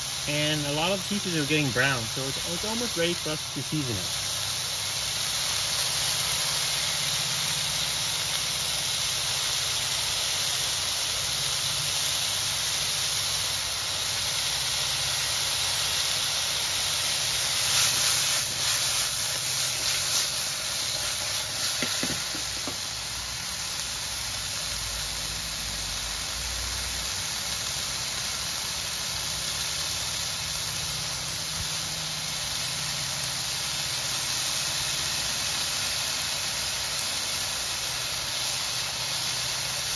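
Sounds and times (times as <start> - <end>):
squash sizzling in a wok: 0.0 - 39.9
wok rattling and scraping: 14.8 - 23.2.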